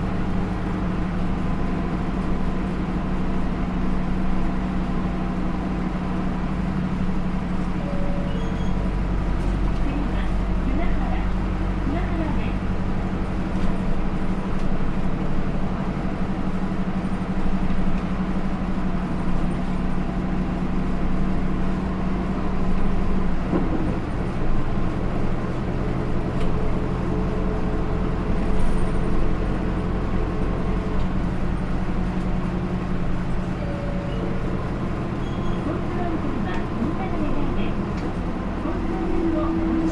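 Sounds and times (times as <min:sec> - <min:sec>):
diesel bus engine running: 0:00.0 - 0:39.9
road noise: 0:08.8 - 0:39.9.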